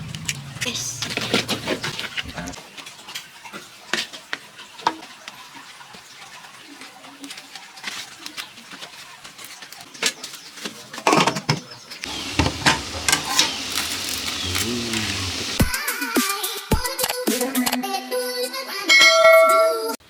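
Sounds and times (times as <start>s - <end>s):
utensils clinking on a plate: 7.2s - 11.8s.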